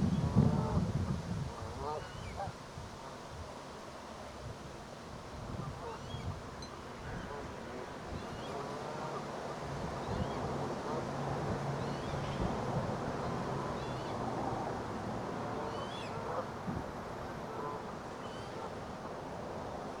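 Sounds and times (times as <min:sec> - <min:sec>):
wind buffeting microphone: 0:00.0 - 0:02.5.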